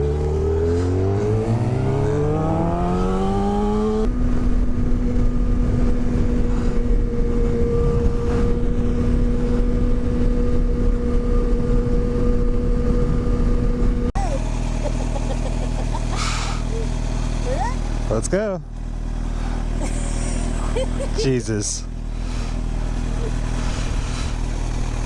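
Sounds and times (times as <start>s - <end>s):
motorcycle engine accelerating: 0.0s - 25.0s
wind rushing over microphone: 0.4s - 14.1s.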